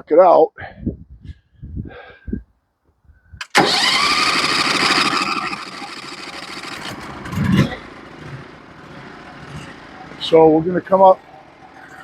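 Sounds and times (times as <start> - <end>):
gasoline engine starting: 3.4 - 12.0.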